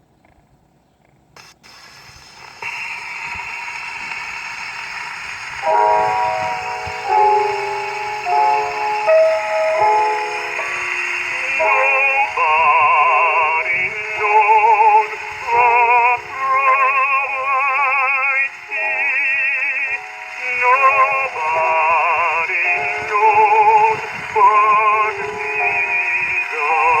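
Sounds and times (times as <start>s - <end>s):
man singing with wide vibrato: 5.6s - 27.0s.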